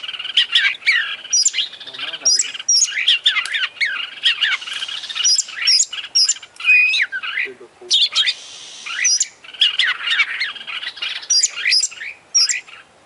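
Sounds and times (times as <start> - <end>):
songbird singing varied whistles: 0.0 - 12.8.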